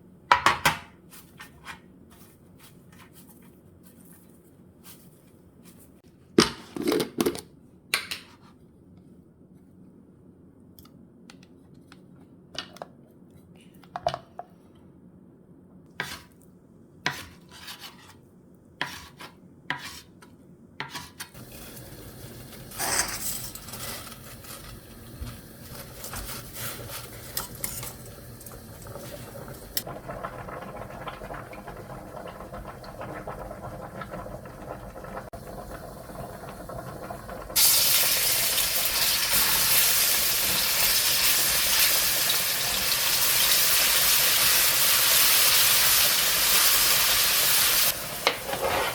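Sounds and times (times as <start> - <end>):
food sizzling: 21.4 - 48.9
stirring and pan clatter: 48.2 - 48.9.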